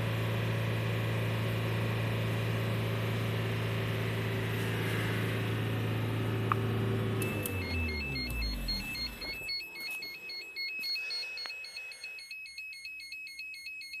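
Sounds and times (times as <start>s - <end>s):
engine switching off: 0.0s - 9.5s
warbling electronic beep: 7.2s - 12.2s.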